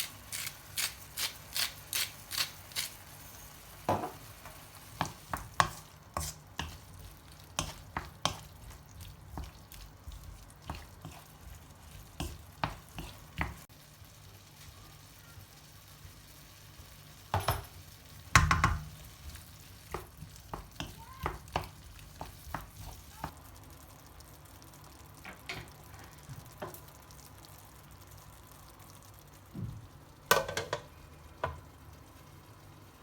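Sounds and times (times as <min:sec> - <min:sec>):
utensils knocking on cookware: 0:30.3 - 0:31.6.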